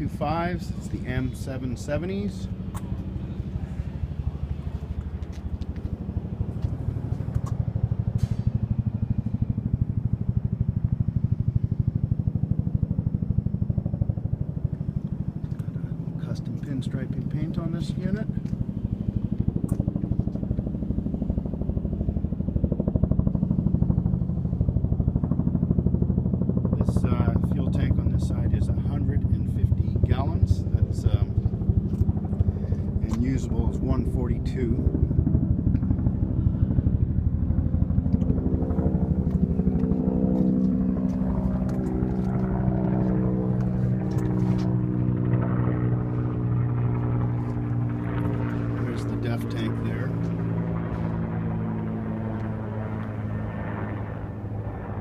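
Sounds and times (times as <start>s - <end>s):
diesel engine idling: 0.0s - 10.8s.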